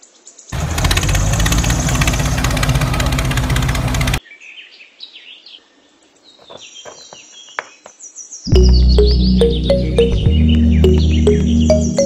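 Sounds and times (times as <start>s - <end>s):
small birds chirping: 0.0s - 12.0s
loud music: 8.6s - 12.0s.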